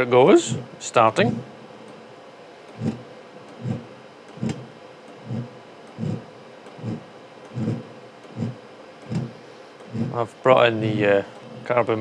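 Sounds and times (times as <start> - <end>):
heater fan humming: 0.0 - 12.0
fuel pump ticking: 2.7 - 12.0.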